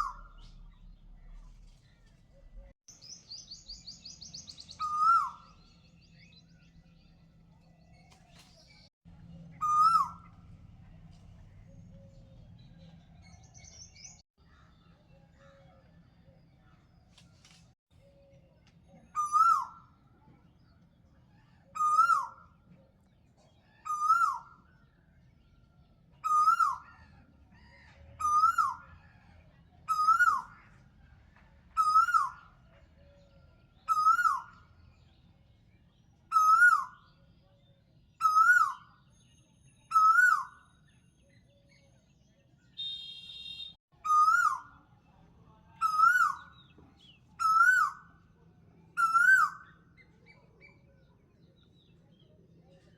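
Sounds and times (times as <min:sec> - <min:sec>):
bird whistled call: 0:03.0 - 0:06.4, 0:09.6 - 0:10.3, 0:19.2 - 0:19.9, 0:28.2 - 0:28.8, 0:29.9 - 0:30.5, 0:31.8 - 0:32.4, 0:33.9 - 0:34.6, 0:36.3 - 0:37.1, 0:38.2 - 0:40.6, 0:42.8 - 0:44.7, 0:47.4 - 0:48.0, 0:49.0 - 0:49.8.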